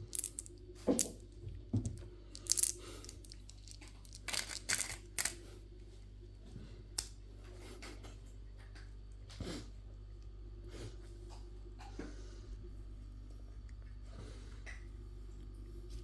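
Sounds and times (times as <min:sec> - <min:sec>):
candy wrapper crinkling and tearing: 0:00.0 - 0:01.1, 0:02.4 - 0:05.4.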